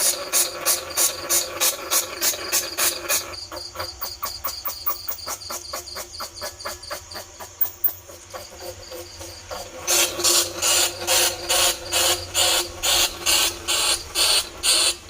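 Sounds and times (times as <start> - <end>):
rat squeaks shrill chirps: 4.1 - 5.2.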